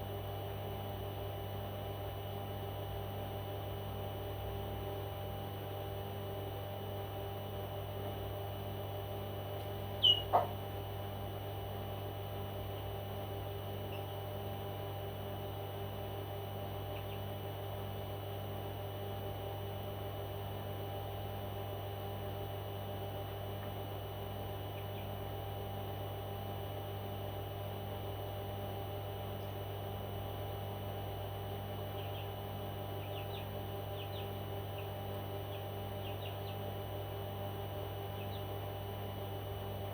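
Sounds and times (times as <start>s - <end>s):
steady electrical hum: 0.0s - 39.9s
parrot calling: 10.0s - 10.5s
parrot chirping faintly: 10.0s - 10.6s.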